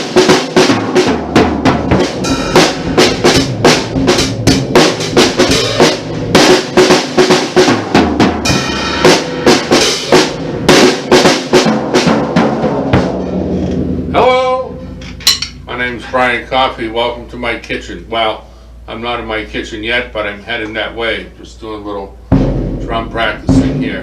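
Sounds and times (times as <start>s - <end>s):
drum kit playing a groove: 0.0s - 17.1s, 22.2s - 24.0s.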